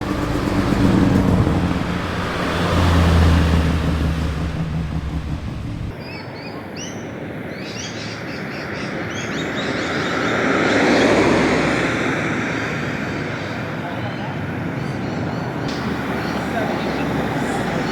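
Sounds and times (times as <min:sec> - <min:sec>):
car engine revving: 0:00.0 - 0:06.0, 0:15.7 - 0:17.9
car passing: 0:00.0 - 0:06.0, 0:10.2 - 0:17.9.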